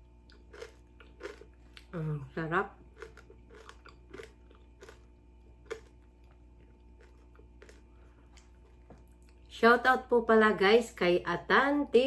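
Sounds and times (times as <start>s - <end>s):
chewing with soft crunches: 0.0s - 2.1s, 2.7s - 9.6s.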